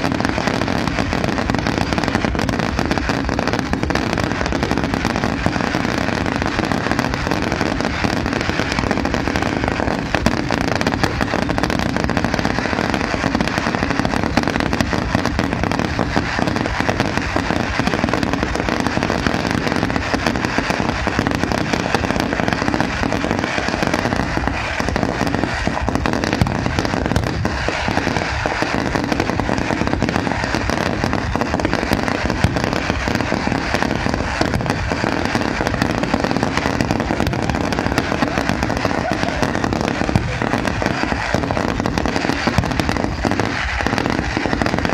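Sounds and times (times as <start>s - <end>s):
fireworks crackling: 0.0s - 44.9s.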